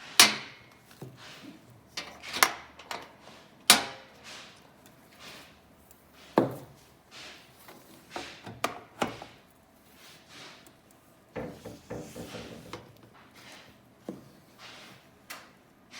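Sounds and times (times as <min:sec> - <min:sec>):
rattling knocks: 0:11.4 - 0:12.9
hard objects knocking and clicking: 0:11.4 - 0:13.1.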